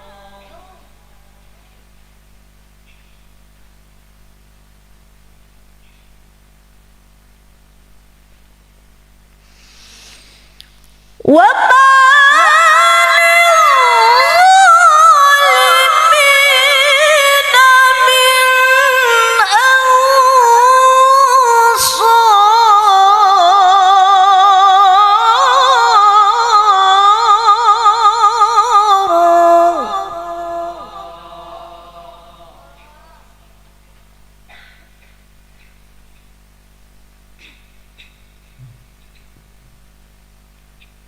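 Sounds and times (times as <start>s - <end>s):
woman reciting melismatic chant: 0.0s - 2.0s, 11.2s - 34.0s.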